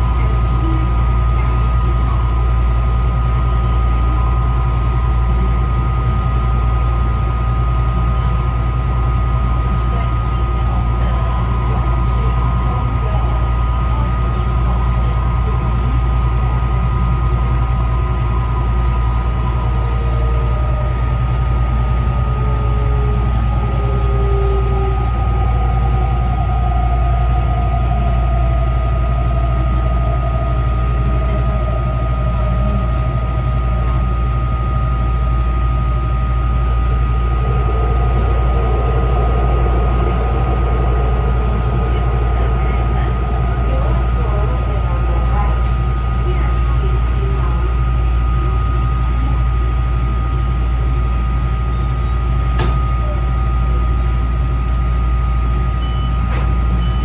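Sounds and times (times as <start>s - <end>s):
wheels rumbling on rail: 0.0s - 57.0s
traction motor whine: 16.7s - 51.3s.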